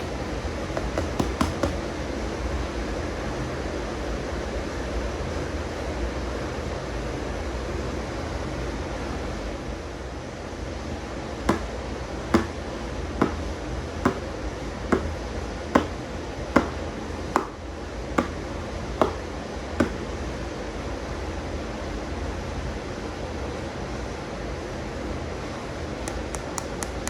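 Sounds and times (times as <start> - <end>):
sharp taps: 0.8 - 1.8, 11.5 - 11.7, 12.4 - 12.6, 13.2 - 13.5, 14.1 - 14.3, 15.0 - 15.2, 15.8 - 16.0, 16.6 - 16.8, 17.4 - 17.6, 19.0 - 19.2.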